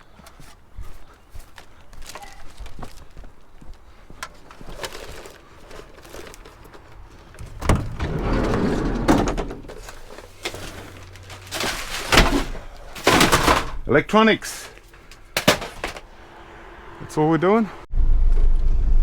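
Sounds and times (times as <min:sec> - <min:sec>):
scrap clicks and knocks: 0:04.2 - 0:13.9, 0:14.5 - 0:16.1
scrap clattering: 0:04.3 - 0:16.1.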